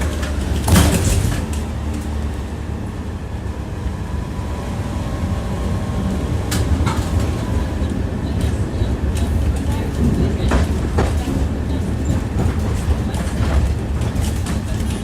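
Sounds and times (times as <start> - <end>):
wheels clacking on rail joints: 0.0 - 2.7, 6.0 - 15.0
tram wheels rumbling on rails: 0.0 - 15.0.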